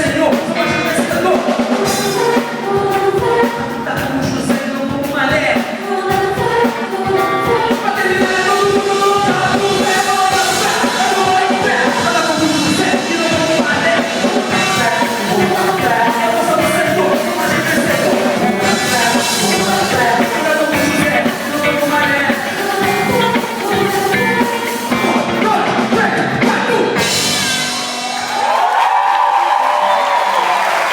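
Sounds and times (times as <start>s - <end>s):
person singing: 0.0s - 27.8s
worship band playing rock: 0.0s - 30.9s.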